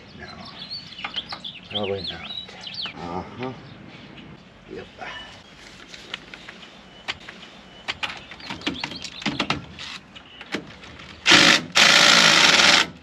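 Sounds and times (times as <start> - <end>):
impact wrench burst: 11.3 - 13.0.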